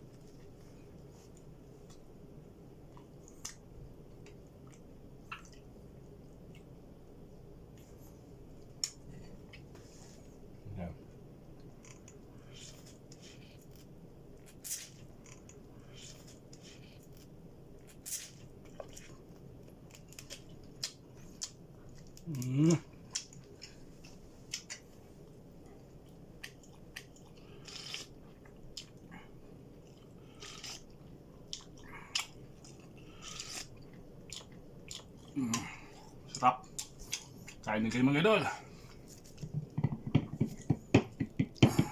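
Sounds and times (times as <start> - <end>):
person chewing and smacking: 2.8 - 6.8, 11.6 - 37.7.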